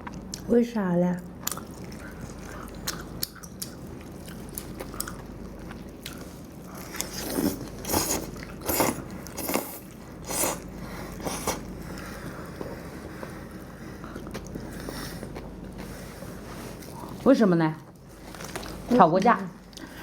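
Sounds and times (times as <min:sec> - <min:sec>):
person chewing and biting food: 0:01.4 - 0:13.2.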